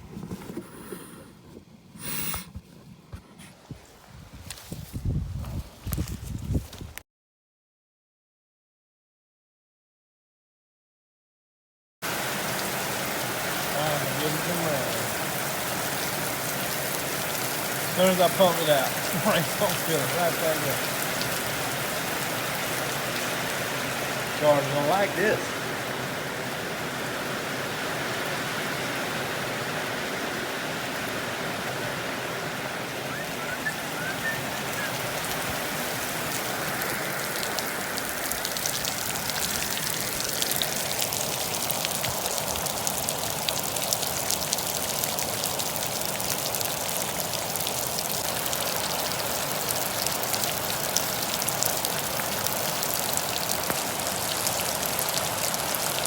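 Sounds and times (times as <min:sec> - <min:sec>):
running water rushing: 0:12.0 - 0:56.0
water splashing and pattering: 0:12.4 - 0:27.0, 0:30.6 - 0:56.0.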